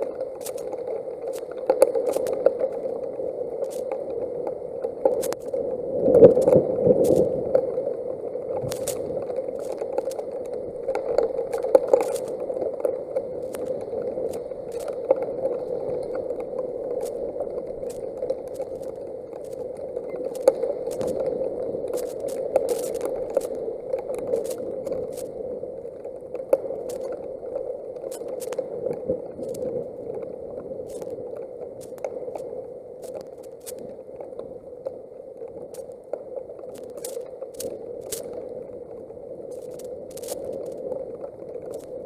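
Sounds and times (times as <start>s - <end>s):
sharp ticks and crackles: 0.0s - 42.0s
heavy rain: 21.8s - 23.5s.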